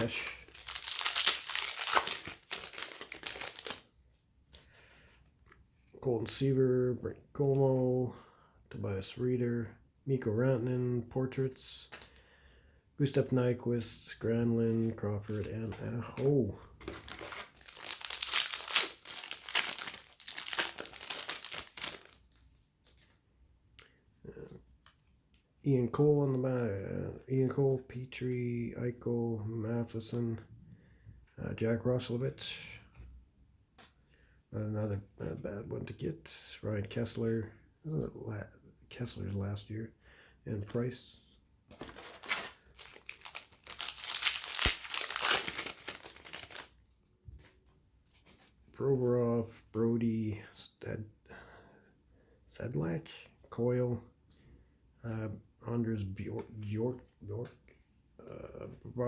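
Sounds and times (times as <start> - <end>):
plastic wrapper crinkling and tearing: 0.0 - 3.9, 16.2 - 23.1, 41.7 - 47.0
faint handling sounds: 14.2 - 25.7, 40.6 - 49.2.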